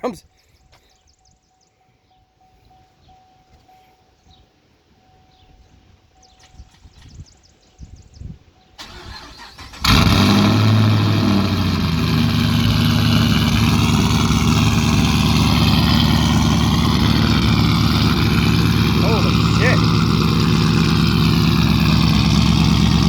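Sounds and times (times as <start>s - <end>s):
car engine loud idle: 8.8s - 23.0s
starter motor cranking: 8.8s - 23.0s.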